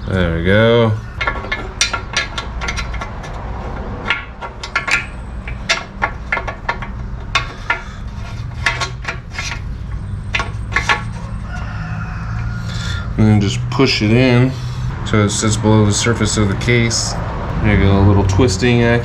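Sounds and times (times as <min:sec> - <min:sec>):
small metal parts clinking: 0:01.0 - 0:13.1.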